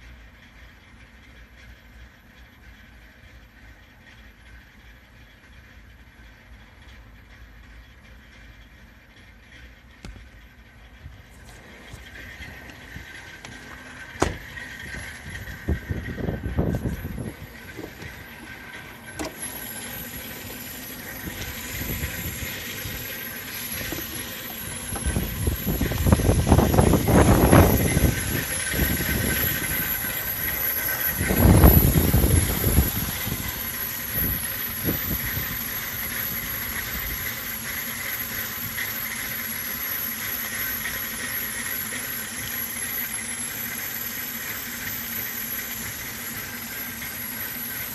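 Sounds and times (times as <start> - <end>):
car engine rough idle: 0.0 - 47.9
thin high whine: 11.2 - 47.9.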